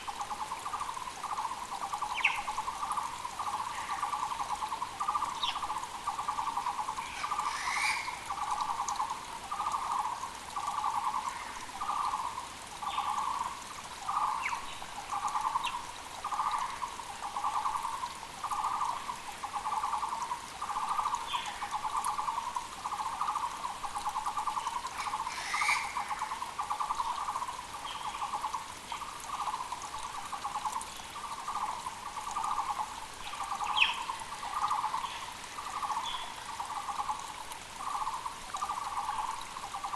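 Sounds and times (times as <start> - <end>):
faint rush of creek: 0.0 - 39.9
other birds calling: 7.0 - 8.6, 24.8 - 27.2
barbet hollow trilled call: 25.0 - 26.1.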